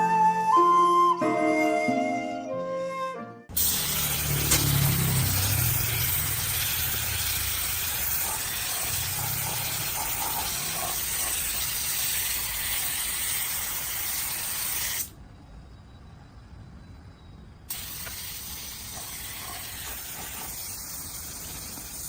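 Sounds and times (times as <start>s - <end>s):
spraying hiss: 3.6s - 15.2s, 17.7s - 22.0s.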